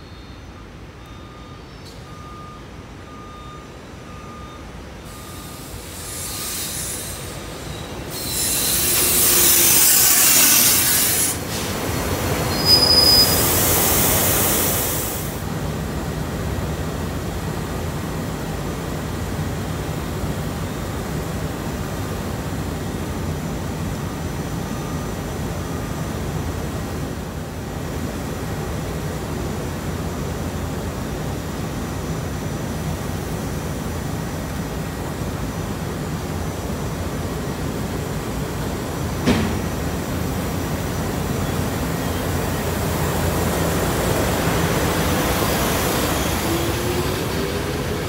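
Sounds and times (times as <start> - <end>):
train low hum: 0.0 - 48.0
electric train passing: 5.0 - 48.0
wheels and brakes squealing: 5.2 - 11.4, 12.5 - 13.9.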